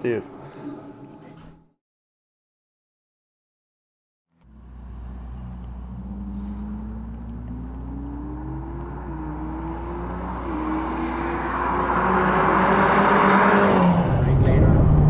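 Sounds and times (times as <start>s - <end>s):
sports car engine accelerating: 4.4s - 15.0s.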